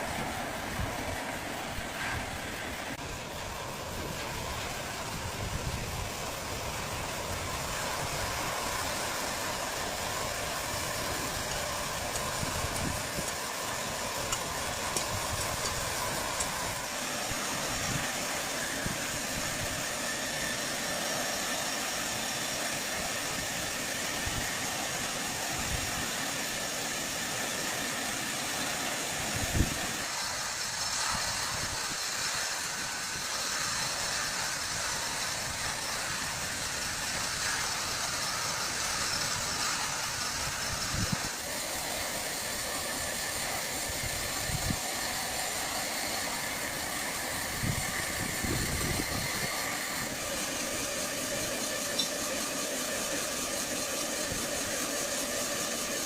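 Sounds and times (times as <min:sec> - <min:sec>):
chainsaw cutting wood: 0:08.1 - 0:20.7.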